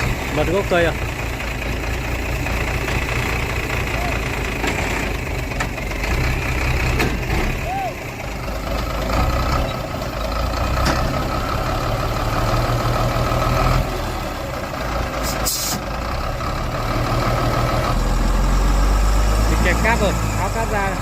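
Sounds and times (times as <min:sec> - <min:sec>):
heavy truck engine under load: 0:00.0 - 0:21.0
air hiss: 0:15.2 - 0:15.8.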